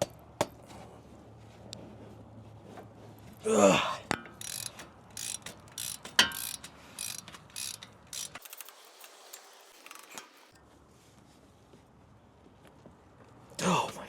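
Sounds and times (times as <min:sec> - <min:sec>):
ratchet wrench clicking: 0:04.1 - 0:10.4.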